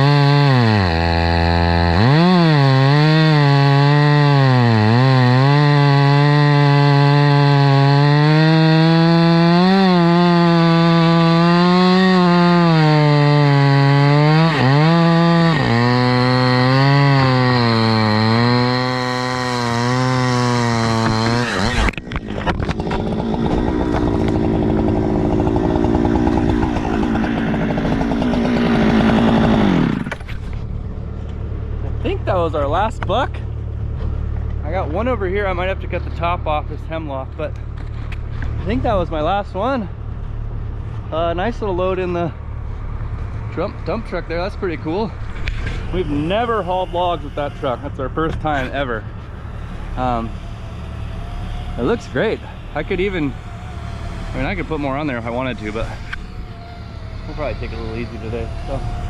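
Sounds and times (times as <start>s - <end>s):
chainsaw cutting a log: 0.0s - 30.7s, 43.8s - 59.0s.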